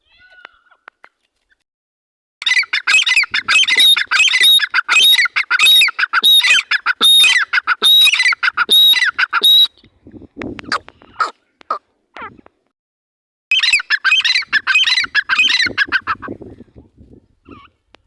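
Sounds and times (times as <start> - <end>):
francolin calling harshly: 2.4 - 9.7.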